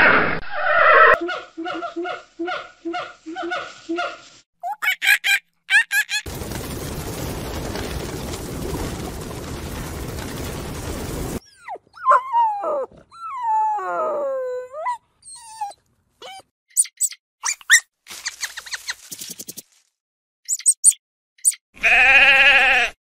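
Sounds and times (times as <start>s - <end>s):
steady rushing noise: 6.3s - 11.4s
dog whining and howling: 11.4s - 16.5s
short high squeaks: 16.7s - 19.6s, 20.5s - 21.6s.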